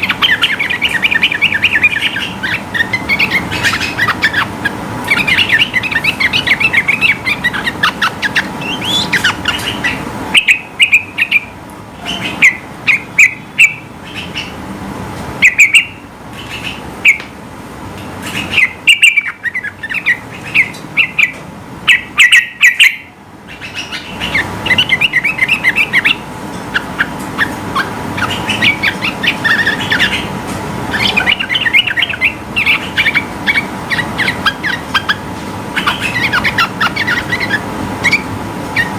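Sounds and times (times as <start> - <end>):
bulbul singing chirped notes: 0.0 - 14.5, 30.9 - 35.2.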